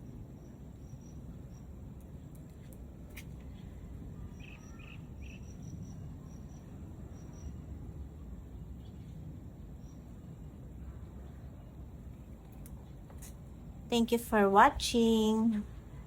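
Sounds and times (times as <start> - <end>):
crickets chirping: 0.0 - 10.8
steady low rumble: 0.0 - 16.0.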